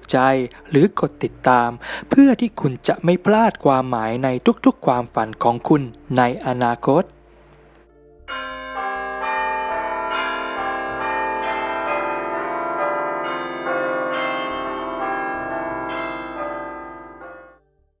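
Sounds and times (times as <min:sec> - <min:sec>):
bell chimes ringing: 0:08.3 - 0:17.6.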